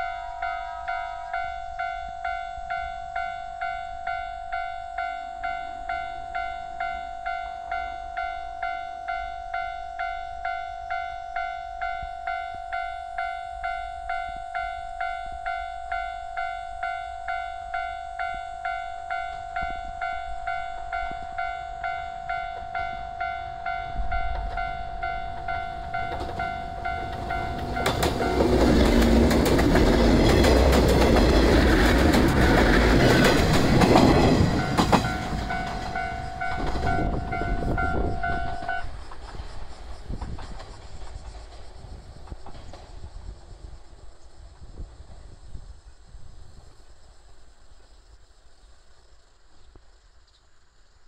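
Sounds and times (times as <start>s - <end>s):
level-crossing warning bell: 0.0s - 39.0s
train wheels clattering on rails: 22.3s - 44.0s.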